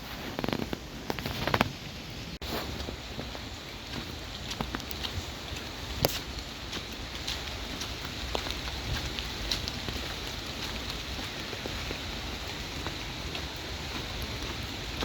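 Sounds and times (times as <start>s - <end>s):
rain falling: 0.1s - 15.0s
raindrops ticking on surfaces: 0.3s - 15.0s.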